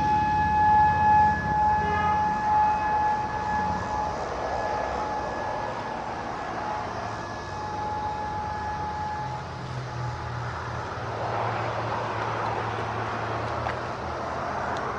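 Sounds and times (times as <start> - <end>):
warning siren alert tone: 0.0 - 10.4
passing vehicle engine hum: 0.0 - 14.9
road noise: 0.0 - 14.9.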